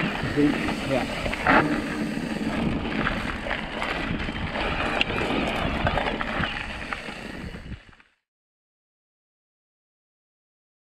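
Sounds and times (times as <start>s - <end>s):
wind buffeting microphone: 0.0s - 7.9s
mountain bike trail rumble: 0.0s - 8.2s.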